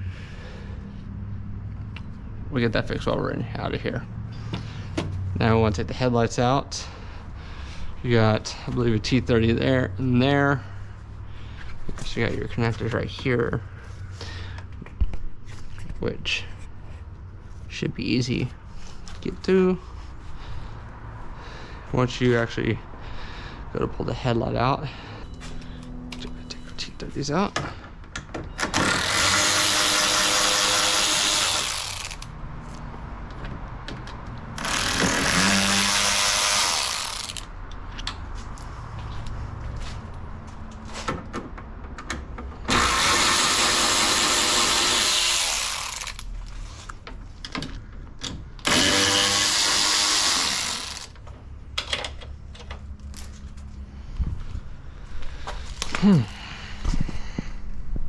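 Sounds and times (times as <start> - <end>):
cordless power driver whining: 28.6 - 32.3, 34.6 - 37.5, 42.7 - 46.3, 48.6 - 51.2
clinks of handling: 51.8 - 53.8.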